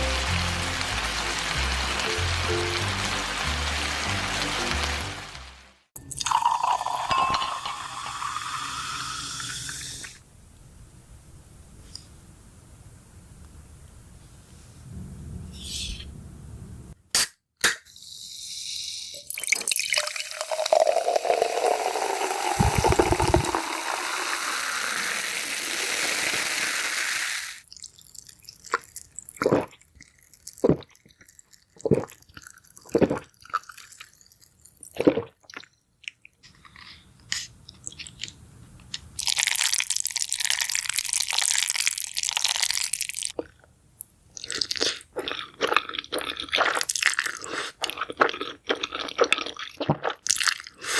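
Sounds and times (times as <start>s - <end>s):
rush of liquid: 21.6s - 27.6s
eating crunches: 44.4s - 50.8s.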